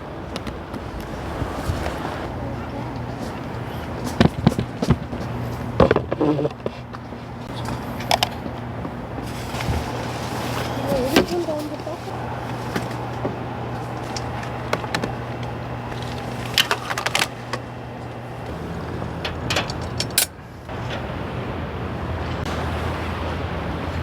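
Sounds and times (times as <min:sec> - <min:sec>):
electric air pump humming: 0:00.0 - 0:23.2
sharp clicks and knocks: 0:14.0 - 0:21.2.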